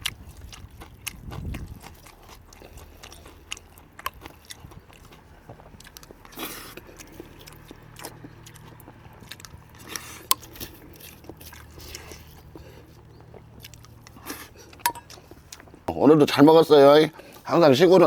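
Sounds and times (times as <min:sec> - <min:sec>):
person chewing food: 0:00.0 - 0:16.0, 0:17.1 - 0:17.9.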